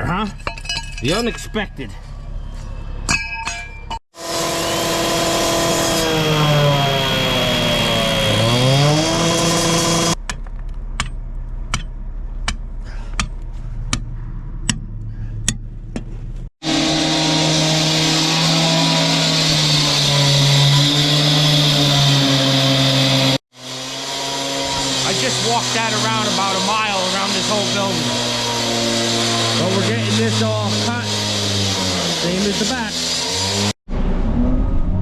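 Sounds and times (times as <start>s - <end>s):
engine running under load: 16.6s - 35.0s.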